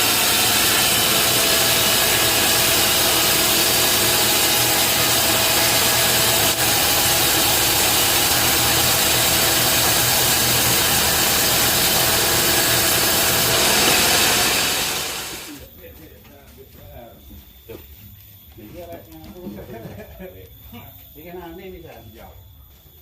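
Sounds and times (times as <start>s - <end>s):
bandsaw hissing: 0.0s - 15.6s
sawmill machine hum: 0.0s - 15.6s.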